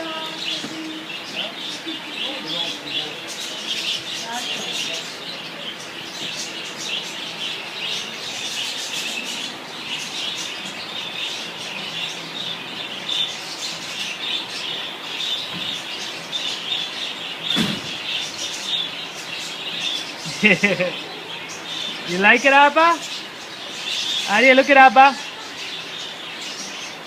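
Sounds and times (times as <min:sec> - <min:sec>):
flock of birds chirping: 0:00.0 - 0:27.0
thump: 0:17.5 - 0:17.9.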